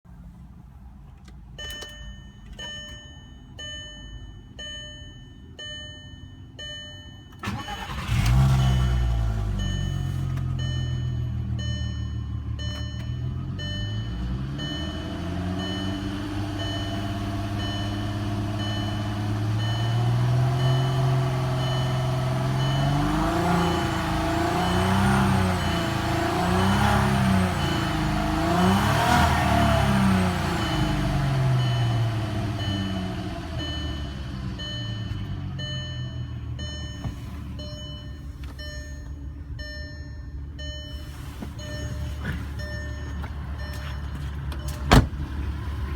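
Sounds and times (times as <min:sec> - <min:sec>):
car engine idling and revving: 0:00.1 - 0:45.9
electronic beep: 0:29.8 - 0:44.8.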